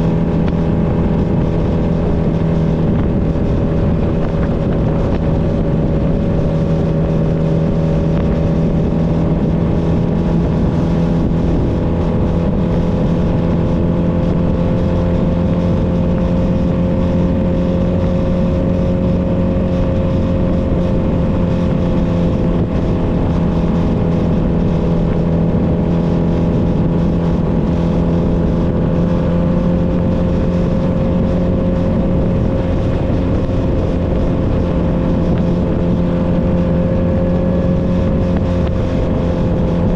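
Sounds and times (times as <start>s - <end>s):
motorcycle engine cruising: 0.0s - 39.9s
road and wind noise: 0.0s - 39.9s.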